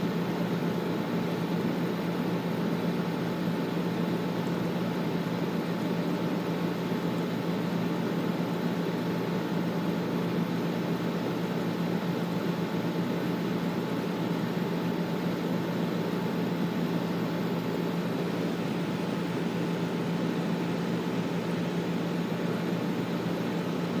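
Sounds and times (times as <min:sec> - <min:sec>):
air conditioner air rushing: 0:10.4 - 0:24.0.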